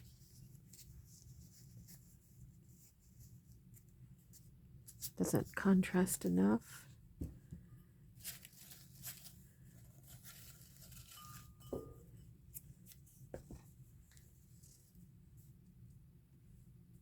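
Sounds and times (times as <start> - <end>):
paper rustling: 8.2 - 11.6.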